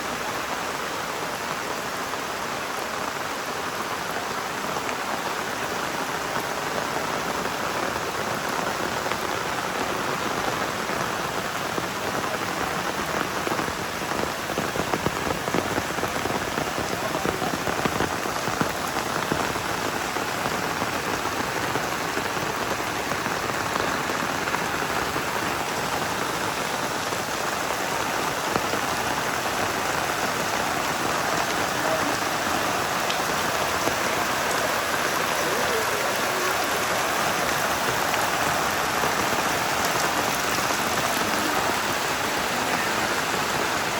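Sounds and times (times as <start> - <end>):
heavy rain falling: 0.0 - 43.9.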